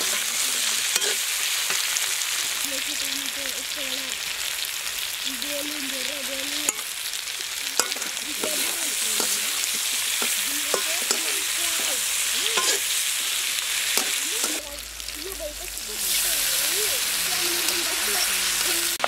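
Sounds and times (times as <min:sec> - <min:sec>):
metal spoon scraping a pan: 0:00.0 - 0:02.2, 0:06.5 - 0:14.8
food sizzling in a wok: 0:00.0 - 0:19.0.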